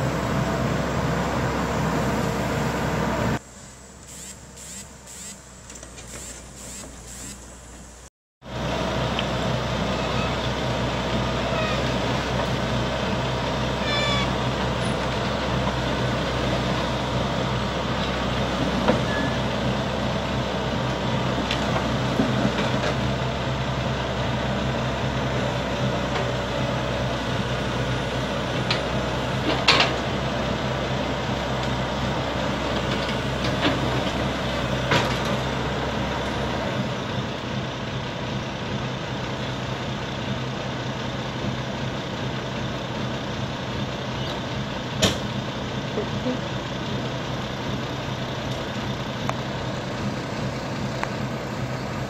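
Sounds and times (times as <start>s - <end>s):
heavy diesel engine running: 0.0s - 52.0s.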